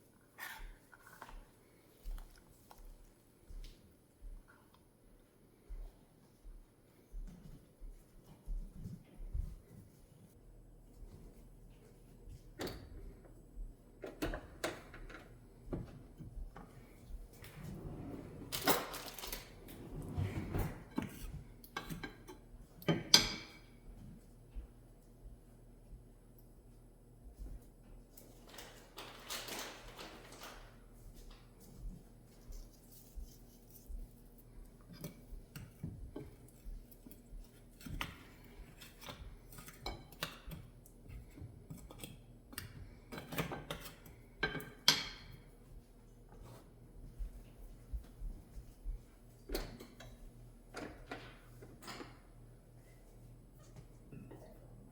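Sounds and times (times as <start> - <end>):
utensils and dishes clattering: 17.8 - 23.7.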